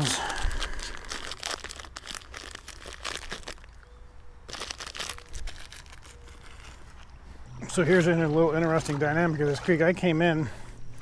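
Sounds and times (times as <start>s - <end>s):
plastic packaging crinkling: 0.0s - 3.9s, 4.5s - 7.2s.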